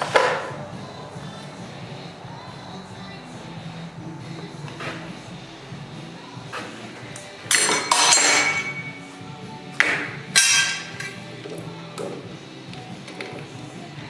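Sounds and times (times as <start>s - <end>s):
drill bits clattering on metal: 6.5s - 9.1s, 9.9s - 11.2s.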